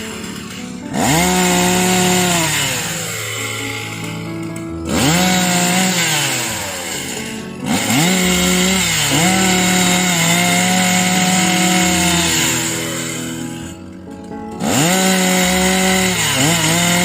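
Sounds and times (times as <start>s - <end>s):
chainsaw revving: 0.0s - 17.0s.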